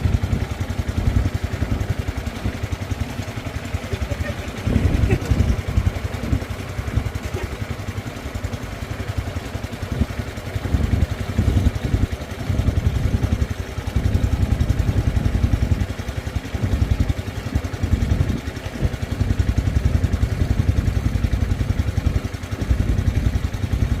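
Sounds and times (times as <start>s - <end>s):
small engine running: 0.0s - 24.0s.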